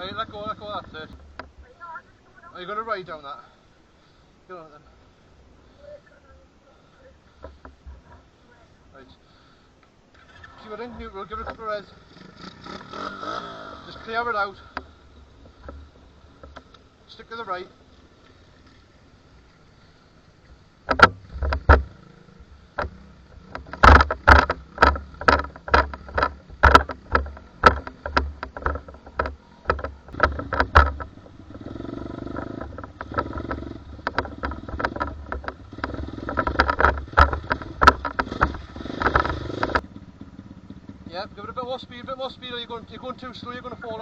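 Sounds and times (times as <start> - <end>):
small motorbike engine running: 12.1 - 13.9, 20.9 - 44.0
sharp knocks and thumps: 14.7 - 16.8, 20.8 - 39.9.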